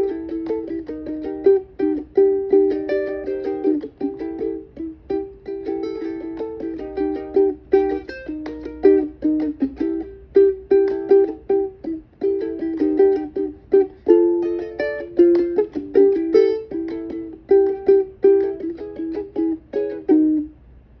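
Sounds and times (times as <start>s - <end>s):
plucked string instrument: 0.0s - 20.7s.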